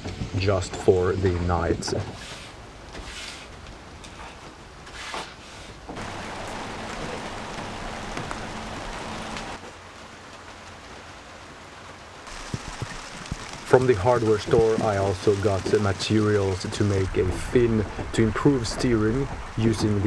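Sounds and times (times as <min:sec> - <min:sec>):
steady rain falling: 0:06.0 - 0:20.0.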